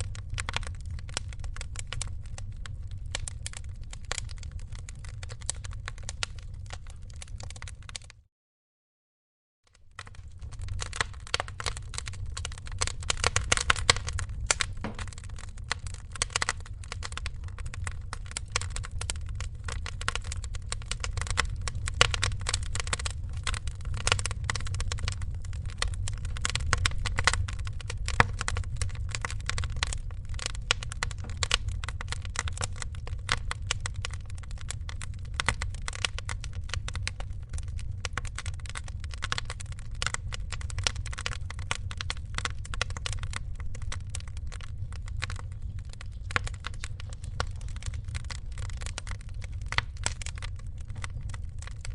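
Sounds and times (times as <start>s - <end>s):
wood fire crackling: 0.0s - 8.2s, 9.7s - 51.9s.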